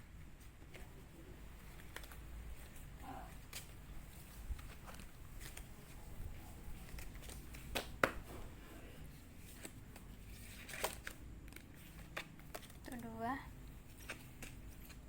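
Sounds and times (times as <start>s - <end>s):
cards slapping and swishing: 3.3s - 13.0s, 13.9s - 15.0s.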